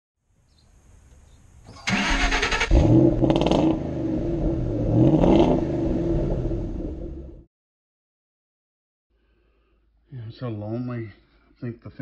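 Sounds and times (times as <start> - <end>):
car starter cranking: 1.7 - 3.8
car engine revving: 1.8 - 7.4.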